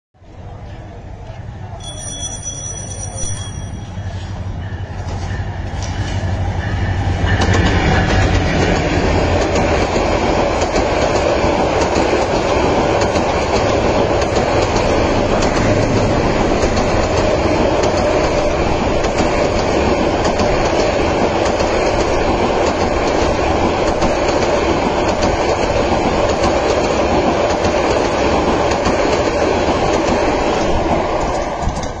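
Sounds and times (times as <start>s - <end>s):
diesel locomotive passing: 0.2s - 32.0s
wheels clattering on track: 7.1s - 32.0s.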